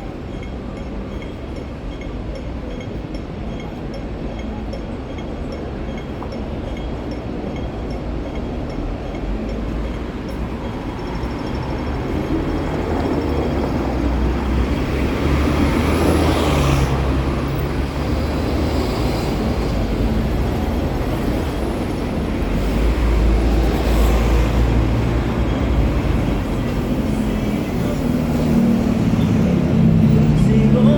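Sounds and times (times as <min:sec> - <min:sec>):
traffic rumble: 0:00.0 - 0:30.9
vehicles passing close by: 0:00.0 - 0:30.9.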